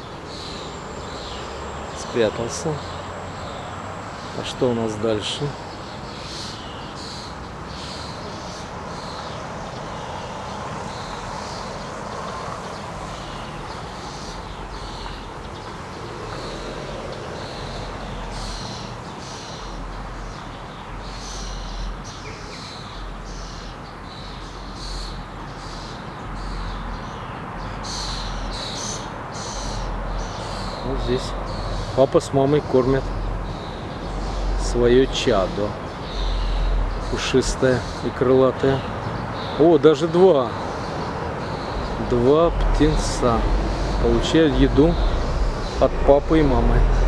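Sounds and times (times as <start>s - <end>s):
thrushes calling: 0.0s - 47.0s
low background noise: 26.2s - 47.0s.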